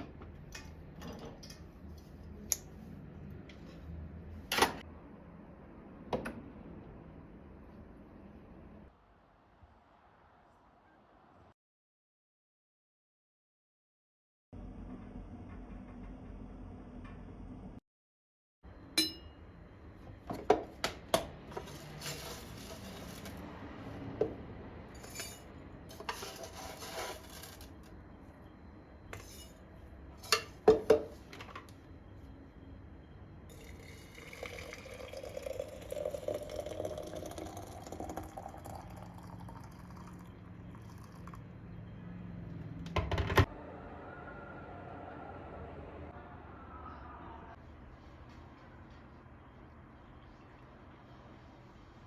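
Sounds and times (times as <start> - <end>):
liquid pouring into a vessel: 33.5 - 41.6.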